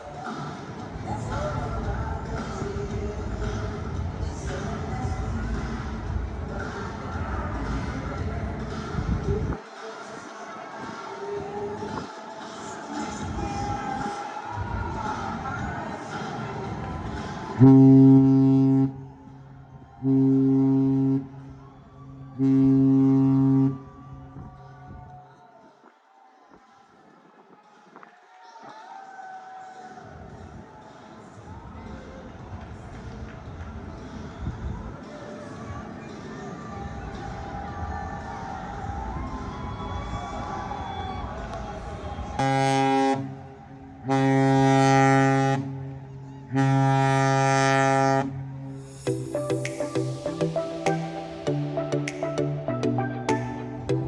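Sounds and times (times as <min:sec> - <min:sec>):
music: 0:00.0 - 0:18.8, 0:29.6 - 0:42.6, 0:48.7 - 0:54.0
ship horn blasts: 0:17.6 - 0:19.0, 0:20.0 - 0:21.4, 0:22.4 - 0:23.9, 0:44.1 - 0:45.6
deep ship horn blasts: 0:22.4 - 0:23.8.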